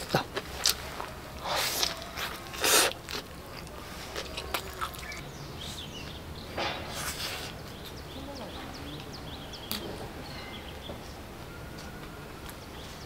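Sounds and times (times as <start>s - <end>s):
biting and chewing sandwich: 0.0s - 5.2s.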